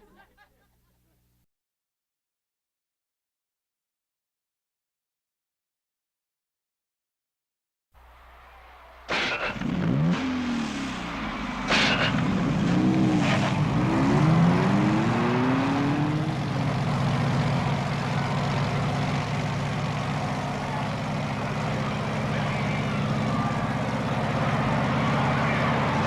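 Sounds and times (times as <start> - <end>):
engine running: 8.0 - 26.0.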